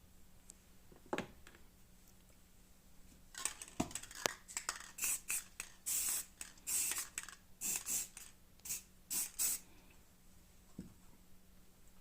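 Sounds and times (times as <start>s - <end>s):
spray paint can hissing: 3.4s - 9.6s.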